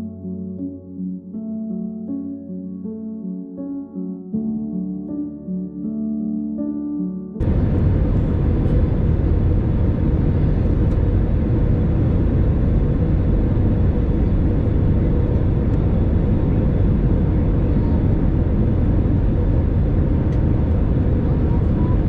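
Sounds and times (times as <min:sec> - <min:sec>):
airplane cabin engine drone: 0:07.4 - 0:22.0
faint steady hum: 0:07.4 - 0:22.0.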